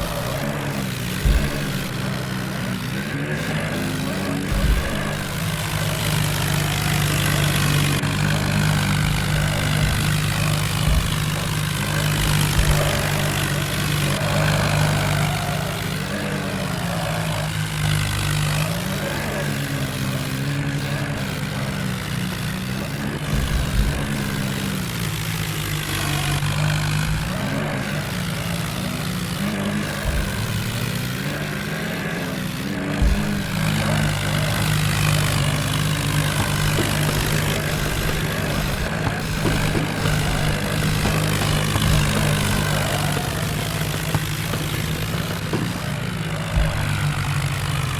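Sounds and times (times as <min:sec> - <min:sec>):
low thuds: 0:00.0 - 0:03.6, 0:04.4 - 0:16.4, 0:23.2 - 0:27.9, 0:30.0 - 0:31.1, 0:33.0 - 0:47.9
tractor diesel engine running: 0:00.0 - 0:47.9.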